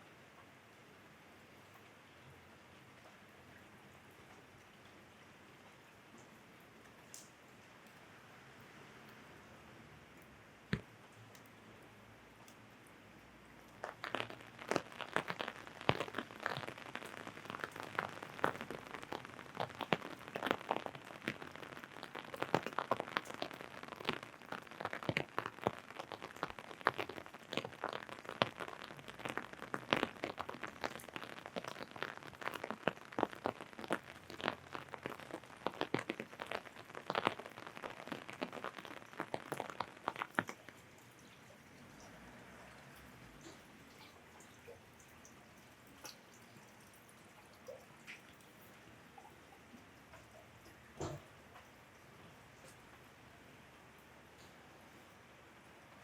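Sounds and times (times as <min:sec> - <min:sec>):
faint rain hiss: 0:00.0 - 0:56.0
raindrops tapping on umbrella: 0:10.2 - 0:11.6, 0:13.6 - 0:53.1.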